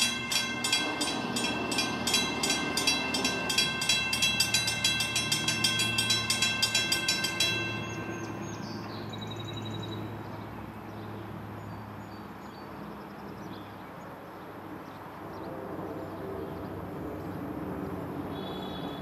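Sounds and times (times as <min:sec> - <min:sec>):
train rail and running noise: 0:00.0 - 0:10.0
train engine hum: 0:00.0 - 0:10.8.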